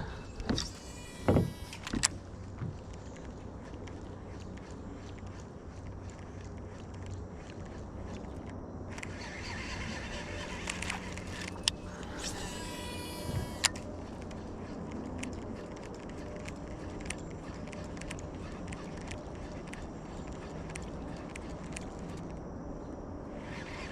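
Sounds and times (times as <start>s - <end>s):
reel spool whirring: 0.0s - 23.9s
fishing reel click: 7.0s - 22.3s.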